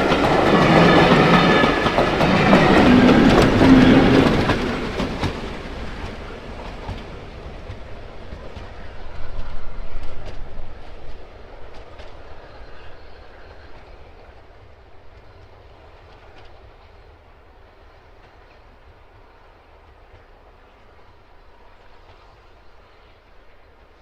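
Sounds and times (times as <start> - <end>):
train wheels clicking over rail joints: 0.0 - 12.4.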